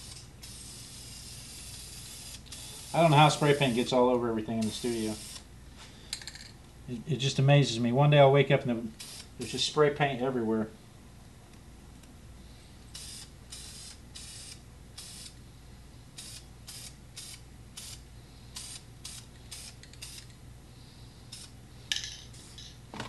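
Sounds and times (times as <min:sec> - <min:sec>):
spray can hissing: 0:00.0 - 0:03.9, 0:13.0 - 0:15.4, 0:16.2 - 0:20.3.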